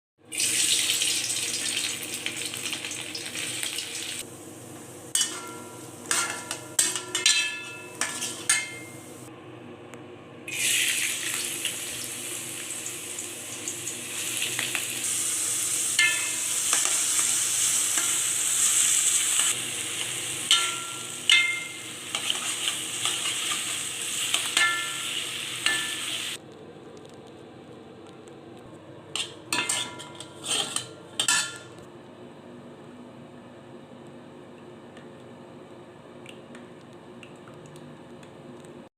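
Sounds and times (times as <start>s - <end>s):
food sizzling in frying pan: 0.3s - 9.3s, 10.5s - 26.4s
metal utensil scraping pan: 5.1s - 9.0s, 20.5s - 26.2s, 29.2s - 31.7s.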